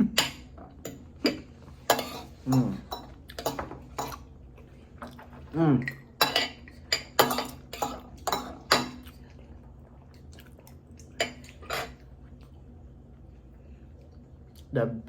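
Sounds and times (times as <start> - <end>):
cutlery clinking on a plate: 5.8 - 9.0.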